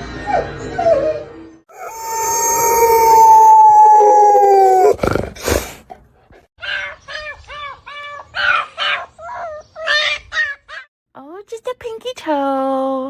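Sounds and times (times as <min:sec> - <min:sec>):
dog howling: 0:00.4 - 0:05.0.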